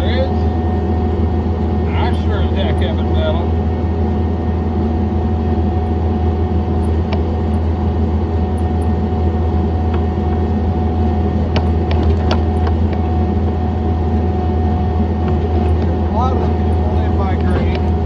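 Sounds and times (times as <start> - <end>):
high whine: 0.0 - 18.0
skid loader engine running: 0.0 - 18.0
sharp clicks or knocks: 11.5 - 13.0.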